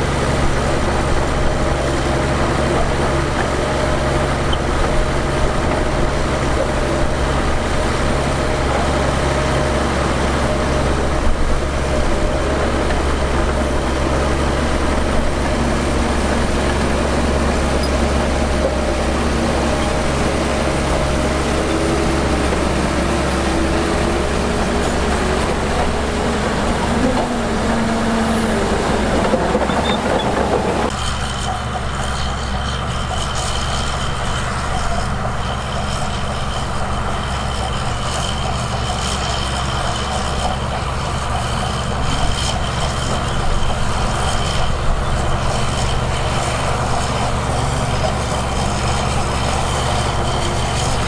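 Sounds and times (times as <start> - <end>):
heavy diesel machinery running: 0.0 - 51.0.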